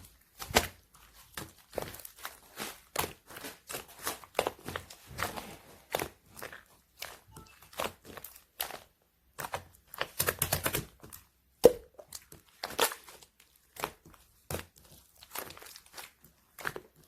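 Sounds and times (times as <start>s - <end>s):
air bubble pops: 11.6s - 12.0s.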